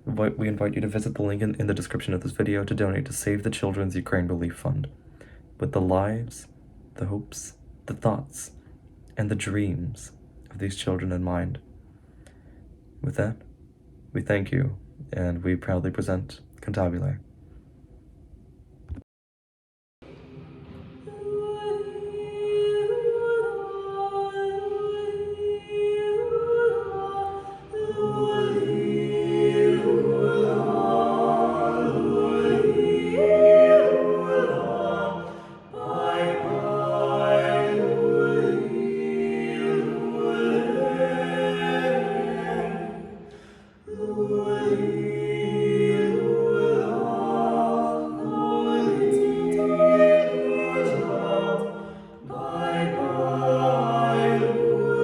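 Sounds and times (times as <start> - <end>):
choir singing sustained chords: 20.1 - 55.0.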